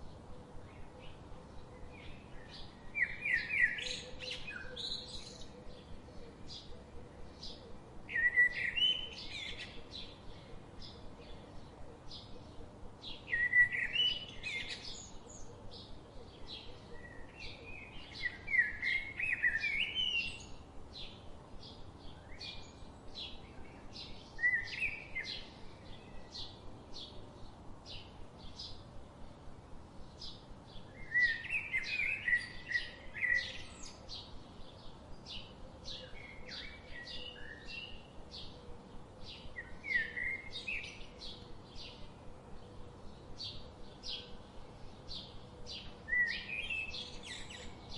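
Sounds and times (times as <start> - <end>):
songbirds warbling: 0.0 - 47.9.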